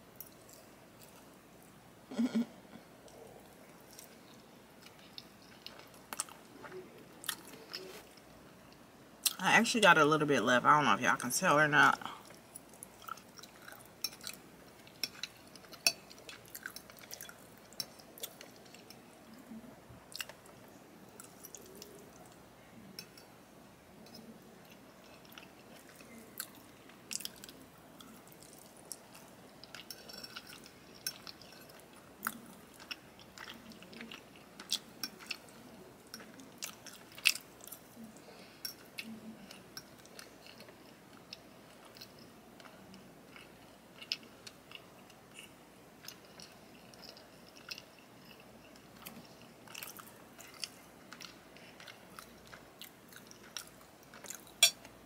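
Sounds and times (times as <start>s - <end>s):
chewing with wet mouth clicks: 12.3s - 19.0s, 24.0s - 38.0s, 38.6s - 54.9s.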